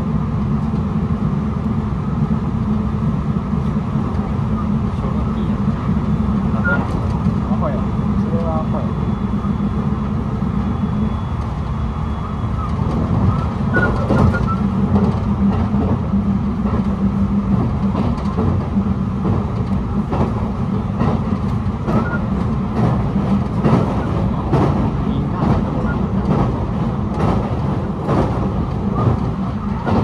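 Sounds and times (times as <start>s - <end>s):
train wheels rumbling on rail: 0.0s - 30.0s
track clacks: 2.2s - 30.0s.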